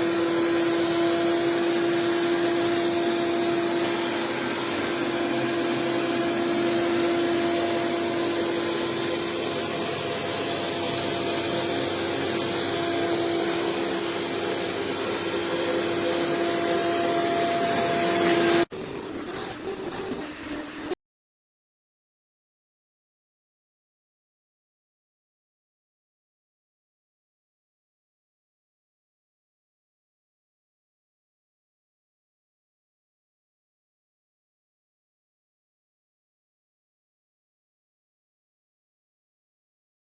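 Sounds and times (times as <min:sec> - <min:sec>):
vacuum motor humming: 0:00.0 - 0:21.0.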